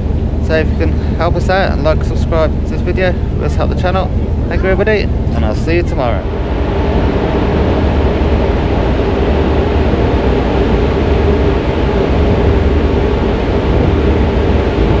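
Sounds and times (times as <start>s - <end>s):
faint steady hum: 0.0s - 15.0s
vehicle engine rumbling: 0.0s - 15.0s.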